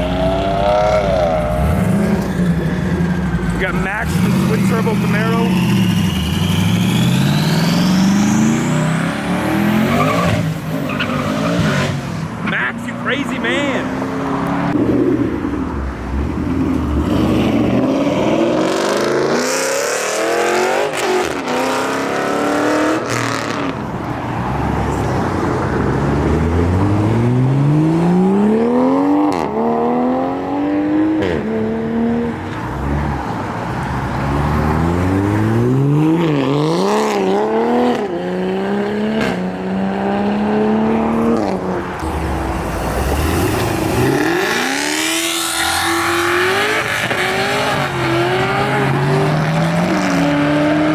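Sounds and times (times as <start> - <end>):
car engine accelerating hard: 0.0 - 50.9.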